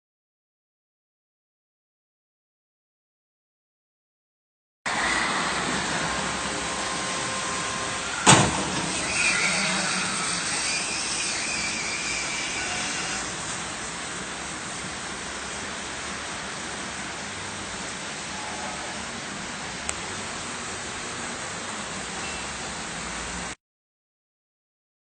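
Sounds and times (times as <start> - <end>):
car road and engine noise: 4.9 - 23.6
brief screech: 6.9 - 13.4.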